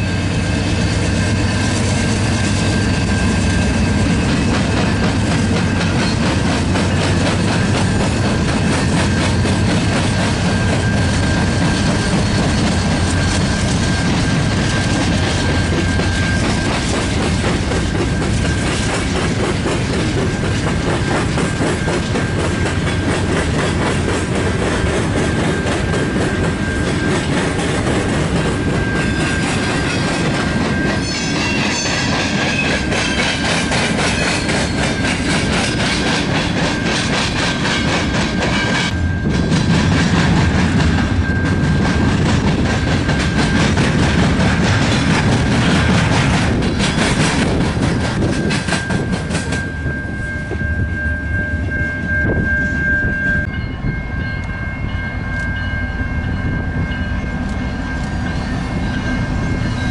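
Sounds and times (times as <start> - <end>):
train wheels clickety-clack: 0.0 - 50.7
crossing warning bell ringing: 0.0 - 59.9
diesel locomotives passing: 0.0 - 59.9.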